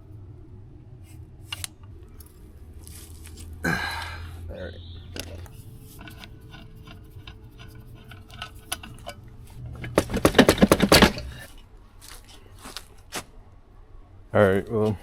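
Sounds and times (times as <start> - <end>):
metal tool clinks and knocks: 5.2 - 9.2
rapid clicking: 9.8 - 11.4.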